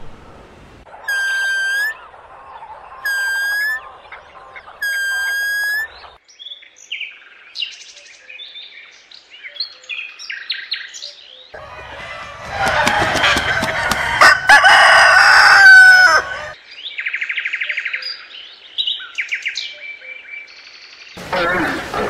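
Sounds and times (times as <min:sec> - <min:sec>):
long loud bird calls: 0:00.9 - 0:06.6
short bird chirps and tweets: 0:03.0 - 0:11.6, 0:16.7 - 0:21.2.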